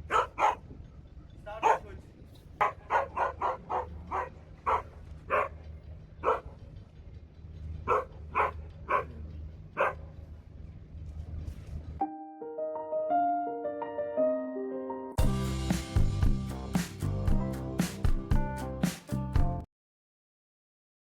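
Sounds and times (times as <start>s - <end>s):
dog barking: 0.0s - 0.6s, 1.6s - 1.9s, 2.6s - 5.6s, 6.2s - 6.5s, 7.9s - 9.2s, 9.8s - 10.1s.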